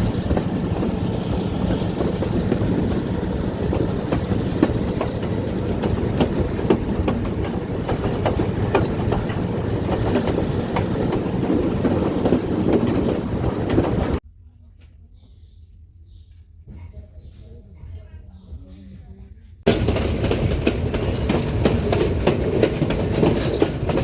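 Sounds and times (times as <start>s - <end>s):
train rumbling on rails: 0.0s - 14.2s, 19.7s - 24.0s
wheels clattering and knocking: 0.0s - 14.2s, 19.7s - 24.0s.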